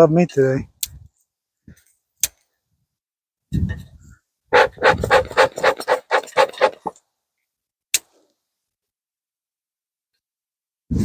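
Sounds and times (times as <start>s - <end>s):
bellows puffing air: 4.5s - 6.9s.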